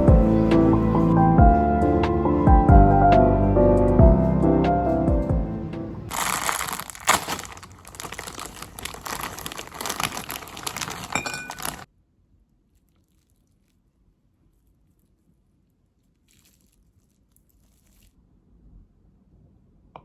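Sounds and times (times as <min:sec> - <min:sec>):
dense crackling and crinkling: 0:06.1 - 0:11.9, 0:12.7 - 0:18.2.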